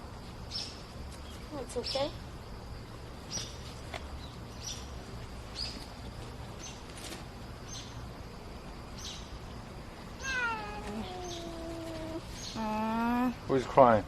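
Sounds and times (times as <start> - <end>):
small bird chirping: 0.5 - 2.2, 3.2 - 6.0, 9.0 - 9.6, 10.2 - 13.4.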